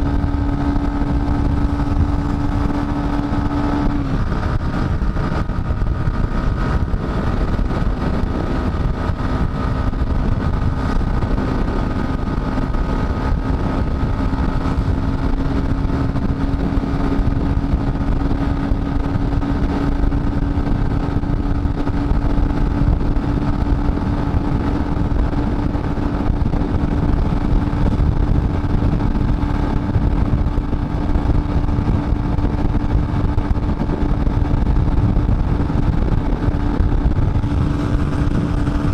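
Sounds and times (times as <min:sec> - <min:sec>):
motorcycle engine running: 0:00.0 - 0:38.9
wind rush on microphone: 0:00.0 - 0:38.9.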